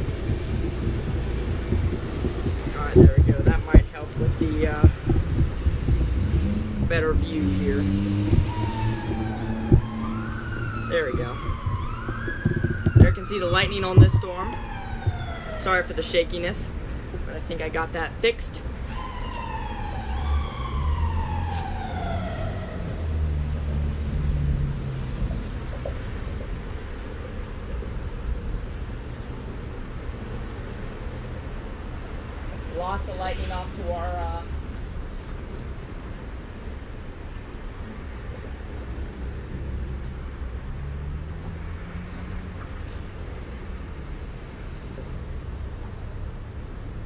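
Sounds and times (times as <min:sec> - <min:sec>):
low rumble: 0:00.0 - 0:16.0
emergency vehicle siren wailing: 0:00.0 - 0:34.9
low street rumble: 0:00.0 - 0:47.0.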